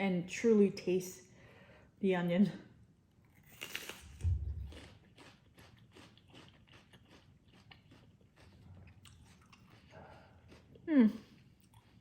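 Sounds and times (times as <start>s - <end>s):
crunchy chewing: 3.2s - 12.0s
biting into raw onion: 3.4s - 9.9s.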